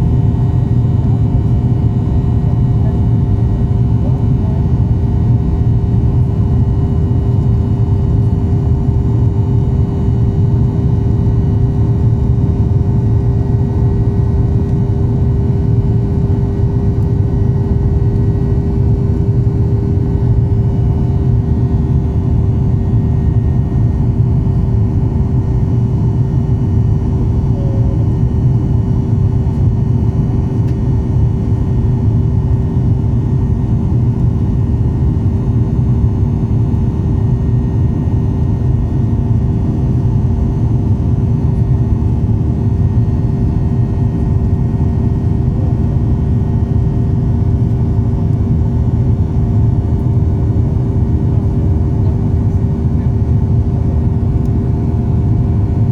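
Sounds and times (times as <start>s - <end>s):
jet engines running: 0.0s - 55.9s.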